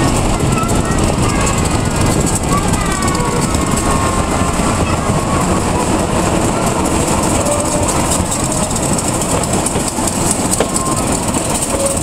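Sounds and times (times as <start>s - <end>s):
train wheels on rails: 0.0s - 12.0s
clicks over rail joints: 6.2s - 12.0s.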